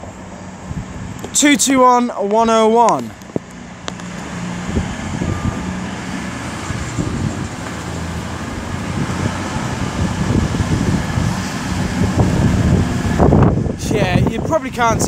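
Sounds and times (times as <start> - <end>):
train passing: 3.6 - 13.2.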